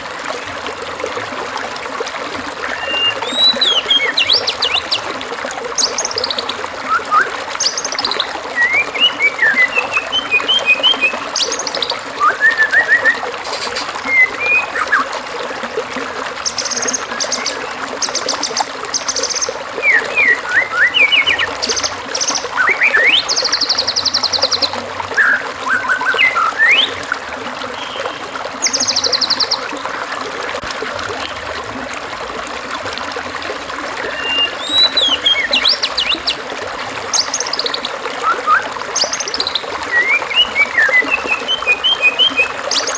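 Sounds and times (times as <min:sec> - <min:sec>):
trickling water: 0:00.0 - 0:42.9
songbird whistles and trills: 0:02.6 - 0:05.2, 0:05.8 - 0:15.1, 0:16.4 - 0:29.7, 0:34.0 - 0:42.9.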